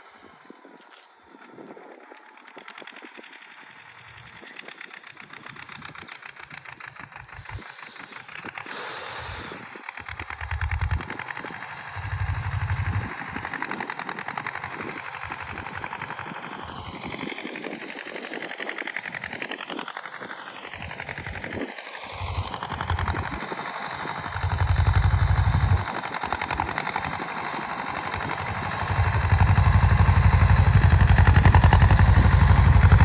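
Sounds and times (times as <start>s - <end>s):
tractor diesel engine knocking: 5.0s - 17.0s, 22.1s - 33.0s.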